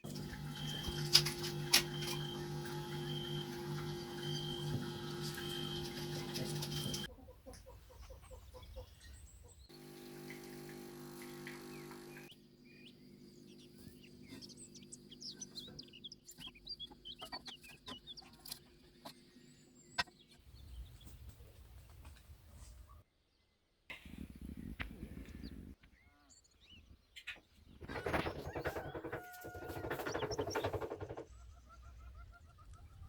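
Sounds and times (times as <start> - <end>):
small birds chirping: 1.8 - 9.8, 11.3 - 23.0, 23.9 - 33.0
poultry clucking: 4.2 - 9.6, 15.6 - 18.6, 27.2 - 33.0.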